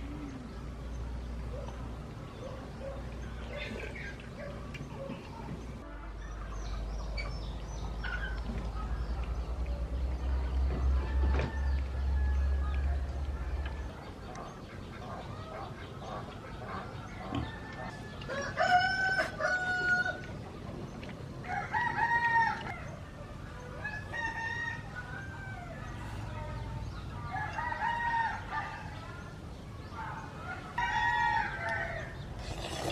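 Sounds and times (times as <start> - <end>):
chickens clucking: 2.3 - 21.6
roosters crowing: 10.8 - 13.0, 16.7 - 20.3, 21.4 - 22.9, 23.7 - 26.2, 27.2 - 29.1, 30.4 - 32.9.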